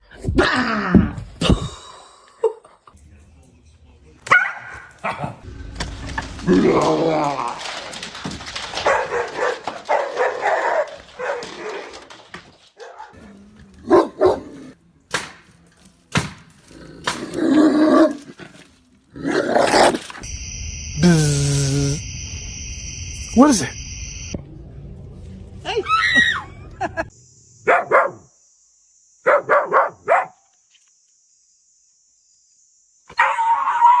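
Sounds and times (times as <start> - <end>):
dog barking loudly: 4.3 - 5.2, 8.8 - 11.7, 12.8 - 13.2, 13.8 - 14.6, 27.7 - 28.2, 29.3 - 30.4
dog whining barks: 12.8 - 14.7, 27.7 - 28.2, 29.3 - 30.4, 33.1 - 34.0
long held call: 20.2 - 24.4.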